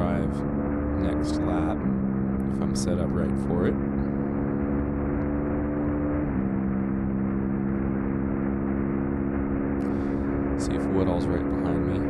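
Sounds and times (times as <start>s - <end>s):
motorcycle engine running hard: 0.0s - 12.0s.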